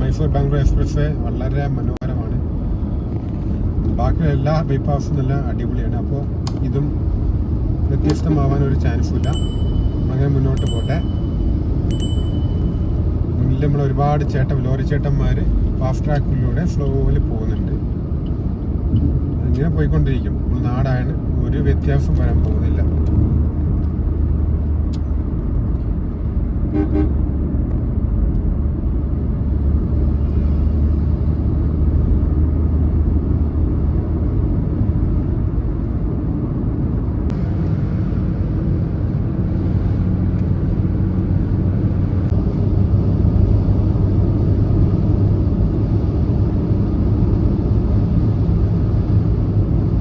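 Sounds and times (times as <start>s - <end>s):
car road and engine rumble: 0.0s - 50.0s
vehicle horn tooting: 26.7s - 27.2s.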